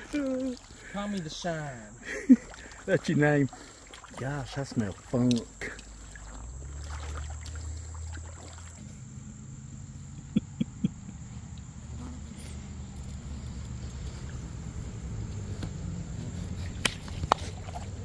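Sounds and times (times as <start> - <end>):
insects droning: 0.0 - 18.0
constant low rumble: 4.3 - 18.0.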